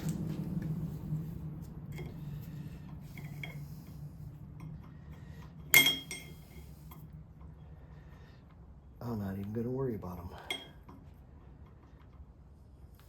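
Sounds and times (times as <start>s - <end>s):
loud ringing metal clank: 5.7s - 6.4s
metal tools clinking: 5.8s - 6.6s.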